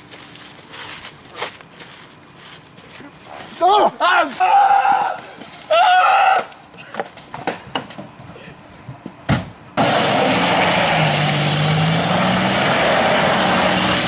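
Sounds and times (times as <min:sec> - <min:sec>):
loud engine running: 0:09.8 - 0:14.0.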